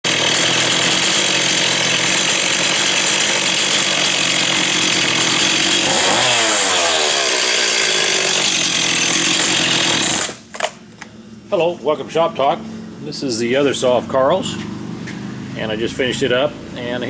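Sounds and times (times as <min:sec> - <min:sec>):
chainsaw running at high revs: 0:00.0 - 0:10.5.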